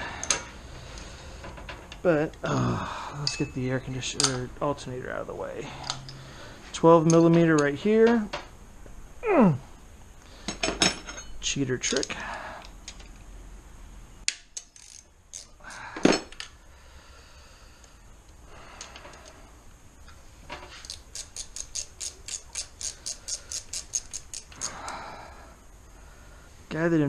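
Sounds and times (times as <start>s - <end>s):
metal hand tools clinking: 3.2s - 4.4s
sharp metal clank: 3.2s - 4.4s
ratchet wrench clicking: 14.5s - 15.6s, 20.8s - 25.0s.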